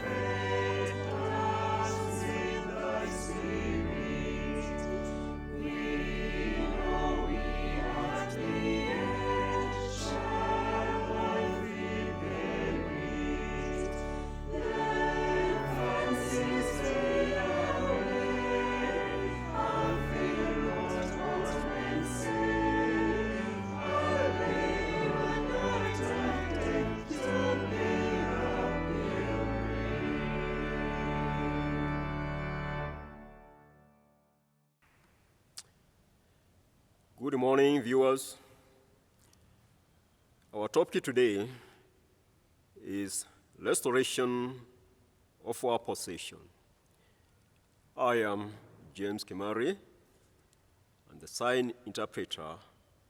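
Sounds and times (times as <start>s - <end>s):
choir singing with accompaniment: 0.0s - 33.4s.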